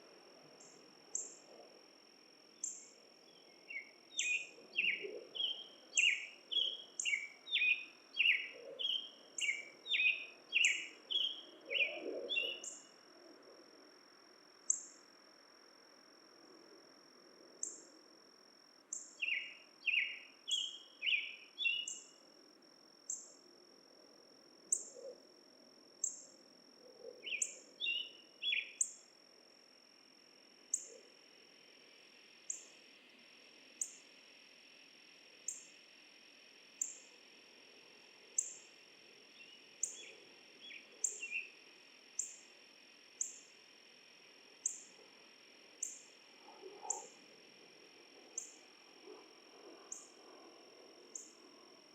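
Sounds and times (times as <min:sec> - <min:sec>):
bird singing: 0:02.6 - 0:12.9, 0:18.9 - 0:22.1, 0:27.2 - 0:29.0, 0:39.4 - 0:41.5
steady high-pitched whine: 0:25.6 - 0:51.9.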